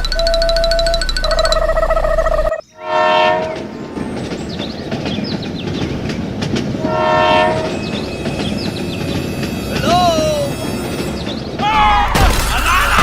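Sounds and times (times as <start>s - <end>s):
train rumbling along track: 0.0s - 13.0s
train horn blasts: 2.8s - 3.7s, 6.8s - 8.0s.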